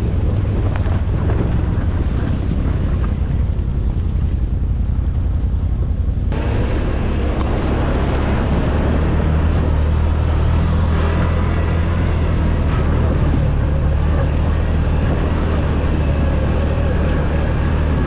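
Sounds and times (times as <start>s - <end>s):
atv engine running: 0.0s - 18.0s
loud rushing noise: 6.3s - 18.0s.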